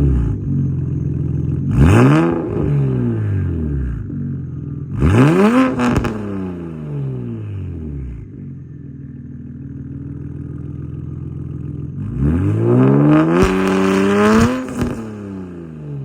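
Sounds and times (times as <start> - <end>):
car engine revving: 0.0 - 8.4, 10.2 - 16.0
sharp exhaust cracks: 13.2 - 15.4.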